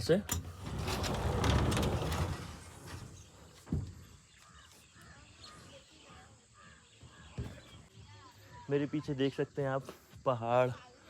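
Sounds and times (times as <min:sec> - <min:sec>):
scraping and rustling: 0:00.5 - 0:04.0.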